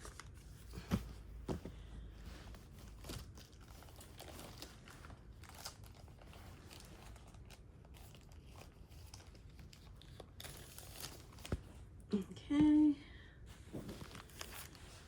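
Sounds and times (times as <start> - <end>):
wrapper crinkling and rustling: 2.3 - 11.8, 13.8 - 15.0.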